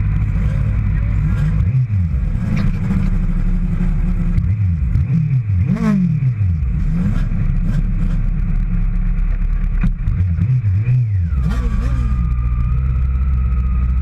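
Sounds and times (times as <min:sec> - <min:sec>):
motorcycle engines revving: 0:00.0 - 0:14.0
steady engine drone: 0:00.0 - 0:14.0.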